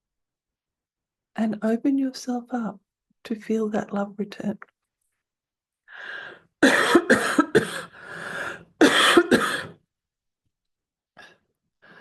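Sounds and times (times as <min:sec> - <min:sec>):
person coughing: 0:06.6 - 0:07.9, 0:08.8 - 0:09.8.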